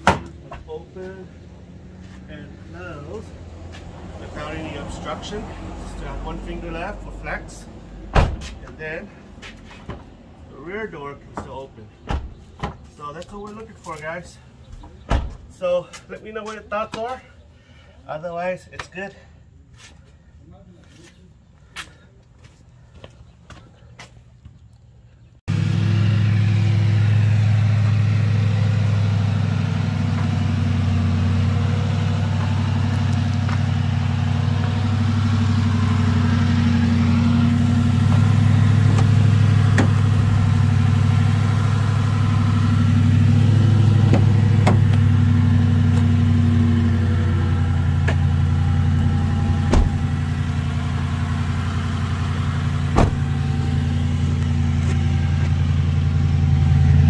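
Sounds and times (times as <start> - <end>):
vehicle engine running: 25.5 - 57.0.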